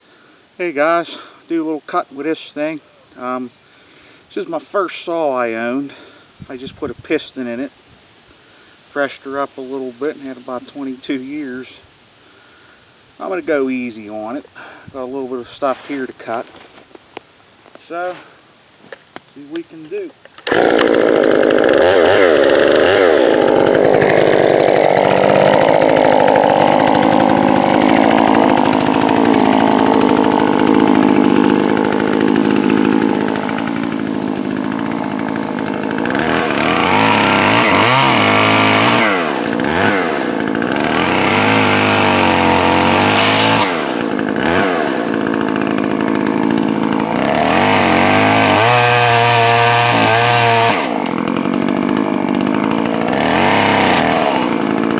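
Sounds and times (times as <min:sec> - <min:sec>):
chainsaw cutting wood: 0:15.7 - 0:54.9.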